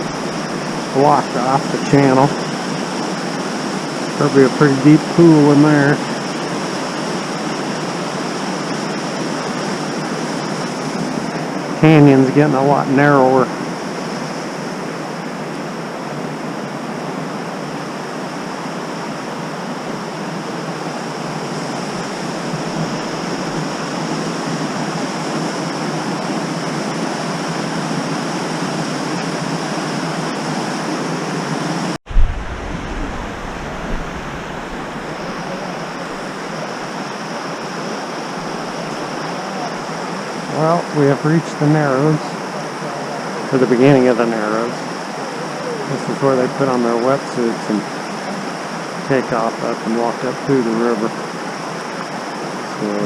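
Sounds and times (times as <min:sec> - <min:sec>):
river rushing over boulders: 0:13.5 - 0:47.1
single thump: 0:32.1 - 0:35.1
low rumble: 0:32.1 - 0:36.5.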